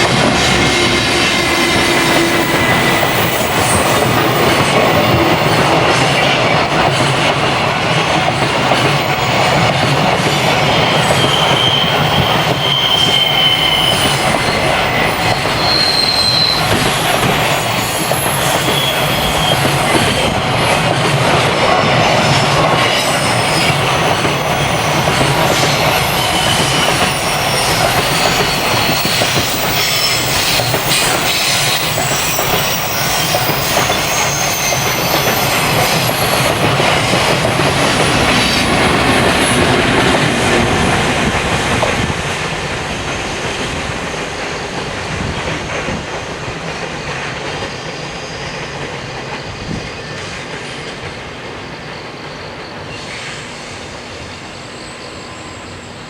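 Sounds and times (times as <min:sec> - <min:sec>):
train rumbling and rattling: 0:00.0 - 0:56.0
wheel squeals: 0:00.4 - 0:07.1, 0:09.0 - 0:20.5, 0:22.3 - 0:40.2.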